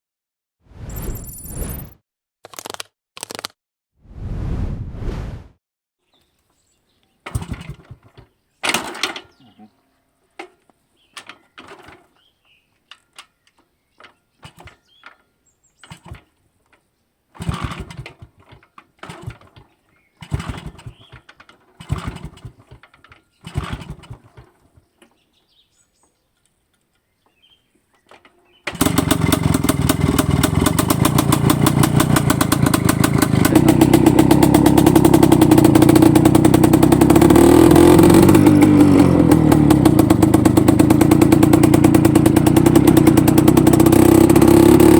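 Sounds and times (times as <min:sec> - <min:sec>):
two-stroke motorcycle engine starting: 0:07.2 - 0:09.4, 0:11.2 - 0:12.3, 0:14.4 - 0:15.2, 0:15.8 - 0:16.4, 0:17.3 - 0:24.9, 0:28.1 - 0:44.9.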